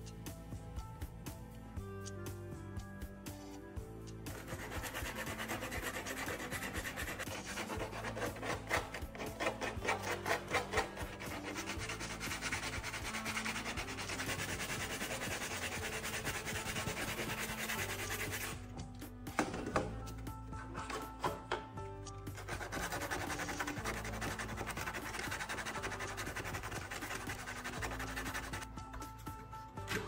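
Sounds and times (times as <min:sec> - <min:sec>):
background music: 0:00.0 - 0:30.0
scraping strokes: 0:04.3 - 0:18.6.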